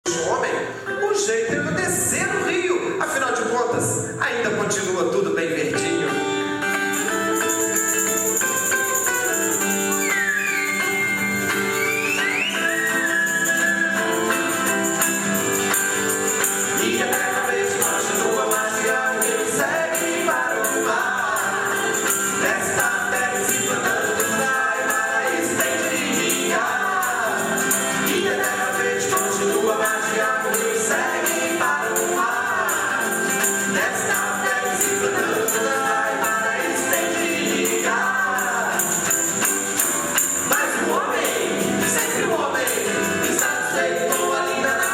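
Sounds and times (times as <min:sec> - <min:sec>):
tambourine shaken in rhythm: 0:06.6 - 0:44.9
voices singing together: 0:09.5 - 0:44.9.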